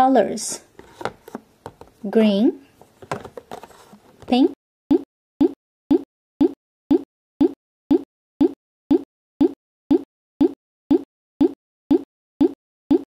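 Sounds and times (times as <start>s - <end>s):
looping rising-pitch pop: 4.9s - 13.0s.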